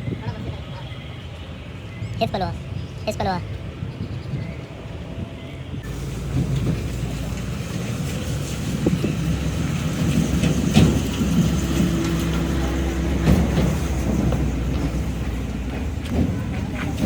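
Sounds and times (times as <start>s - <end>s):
heavy machine engine running: 5.8s - 17.0s.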